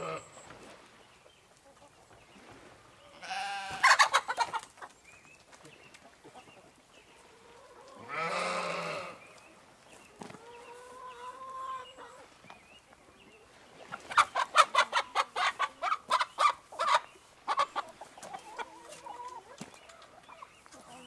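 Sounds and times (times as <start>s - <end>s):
chicken clucking: 1.5s - 2.2s, 3.0s - 21.0s
chicken squawk: 3.1s - 4.6s, 14.1s - 19.6s.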